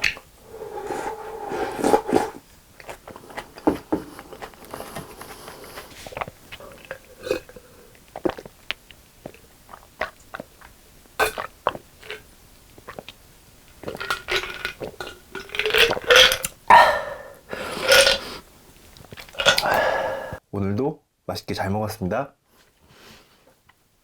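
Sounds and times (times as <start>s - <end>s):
chewing: 0.8s - 12.2s, 13.8s - 20.4s
wet mouth clicks and smacks: 18.8s - 19.8s.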